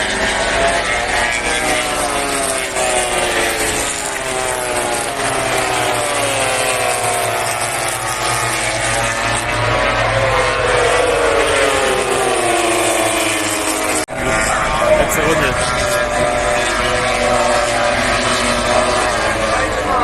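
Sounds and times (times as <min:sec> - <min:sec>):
racing motorcycles passing: 0:00.0 - 0:20.0.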